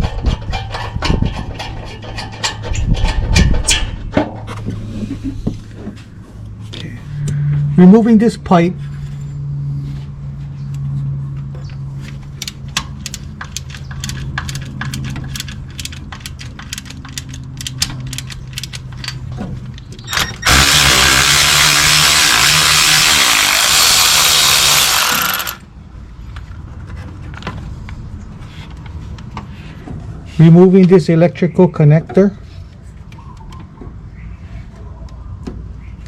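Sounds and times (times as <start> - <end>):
ratchet clicking: 12.4 - 19.2, 20.0 - 25.6
impact ratchet running: 20.1 - 25.6.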